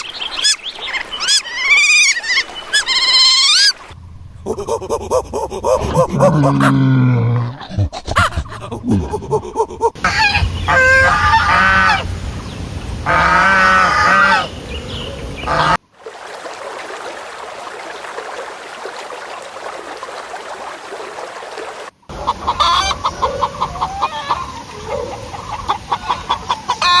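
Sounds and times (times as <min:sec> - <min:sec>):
chickens clucking: 0:07.7 - 0:15.8, 0:22.1 - 0:27.0
steady hiss: 0:08.7 - 0:15.7
goose honking: 0:10.0 - 0:15.8.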